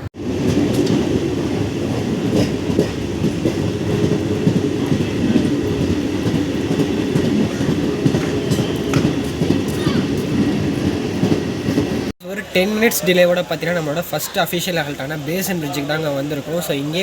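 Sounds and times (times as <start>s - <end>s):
wheels clacking over rail joints: 0.0s - 13.0s
train coach rumbling: 0.0s - 17.0s.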